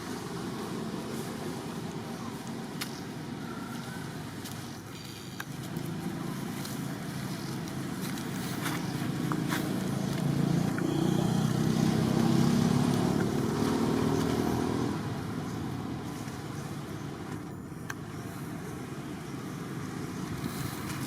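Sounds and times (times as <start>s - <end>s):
outdoor background: 0.0s - 21.0s
vehicle engine humming: 0.0s - 21.0s.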